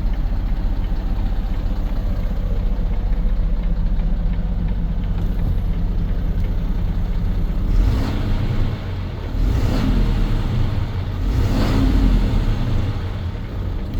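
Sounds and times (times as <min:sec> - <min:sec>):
diesel truck engine revving: 0:05.1 - 0:13.9.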